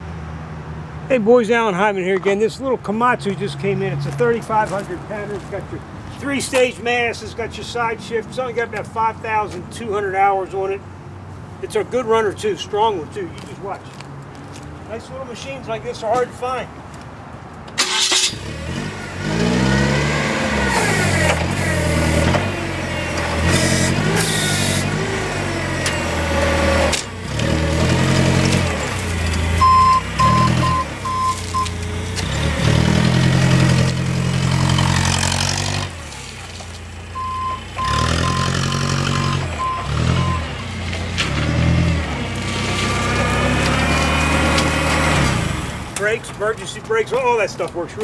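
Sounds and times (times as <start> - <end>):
forklift engine revving: 17.8 - 46.0
backup alarm beeping: 29.6 - 31.8, 37.2 - 40.5.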